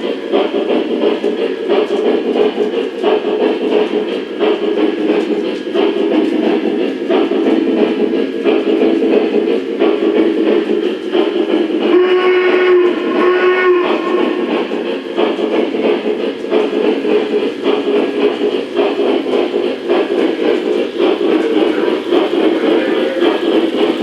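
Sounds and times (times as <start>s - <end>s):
light clicking on track: 0.0s - 13.2s, 13.8s - 24.0s
model train running noise: 0.0s - 24.0s
model train steam whistle: 11.8s - 14.6s.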